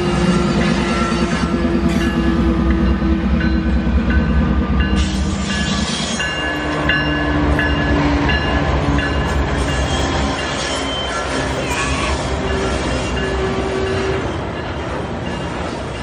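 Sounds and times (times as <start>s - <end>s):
diesel locomotive engine rumble: 0.0s - 16.0s
high metallic squeals: 5.0s - 7.9s, 9.2s - 14.3s
wagons rolling on rails: 5.0s - 16.0s.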